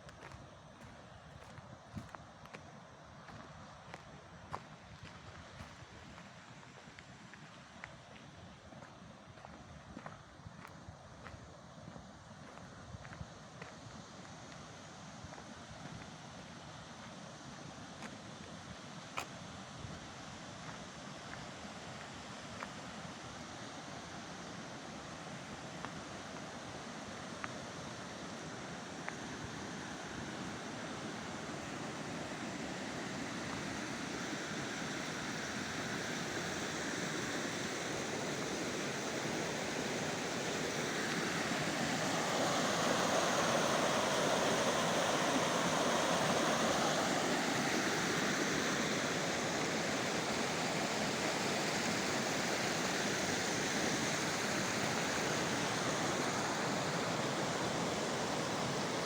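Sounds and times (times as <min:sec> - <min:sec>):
rushing water of stream: 0:18.1 - 0:59.0.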